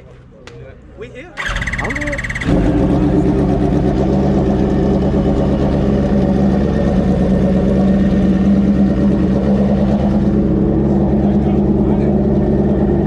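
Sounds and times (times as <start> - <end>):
motorcycle engine idling: 1.4 - 13.0.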